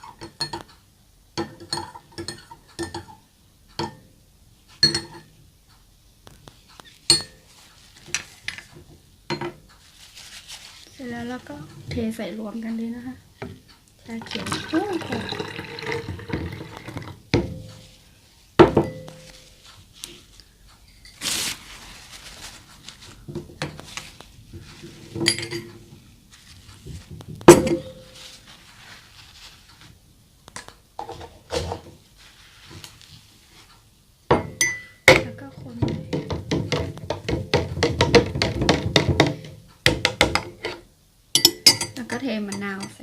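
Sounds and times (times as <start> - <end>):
glassware clinking: 0.0 - 0.7, 1.4 - 3.2, 3.8 - 4.1, 4.8 - 5.3, 7.1 - 7.4, 18.6 - 19.3, 25.2 - 25.8, 27.5 - 28.2, 34.3 - 35.3, 41.4 - 43.0.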